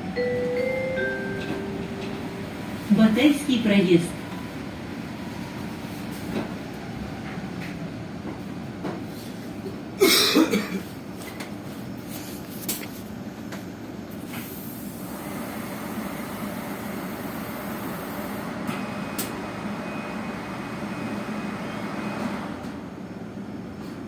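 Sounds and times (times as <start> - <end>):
bus cabin noise: 0.0 - 24.0
person coughing: 10.0 - 10.9.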